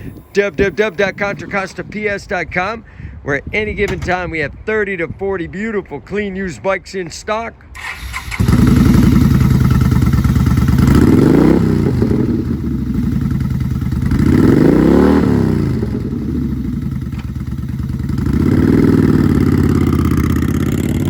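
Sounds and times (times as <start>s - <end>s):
motorcycle engine revving: 7.8s - 21.0s.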